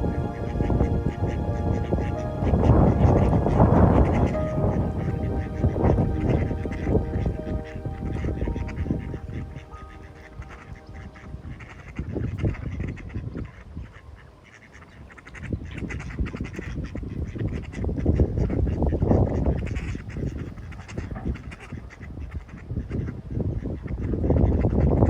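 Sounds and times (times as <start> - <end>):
geese honking: 0.0 - 13.1.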